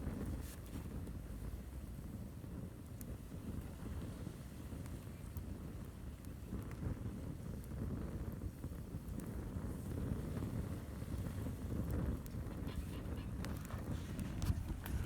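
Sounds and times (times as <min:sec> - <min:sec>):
wind buffeting microphone: 0:06.8 - 0:15.0.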